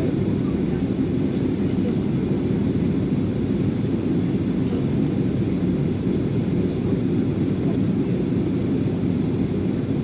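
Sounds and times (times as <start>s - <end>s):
jet engines rumbling: 0.0s - 10.0s.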